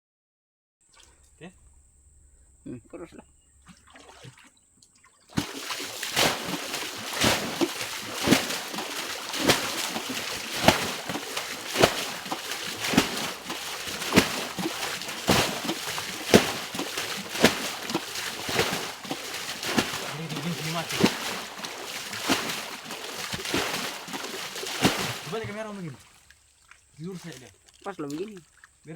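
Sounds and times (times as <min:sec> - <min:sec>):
water sloshing: 0:00.9 - 0:28.9
water splashing from bailing: 0:02.7 - 0:28.9.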